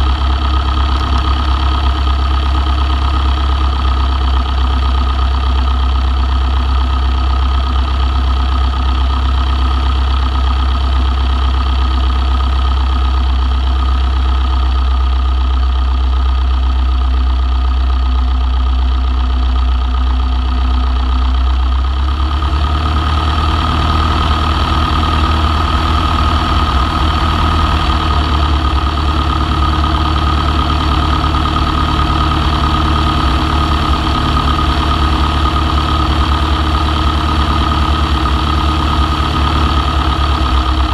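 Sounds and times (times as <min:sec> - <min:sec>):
aircraft piston engine idling: 0:00.0 - 0:40.9.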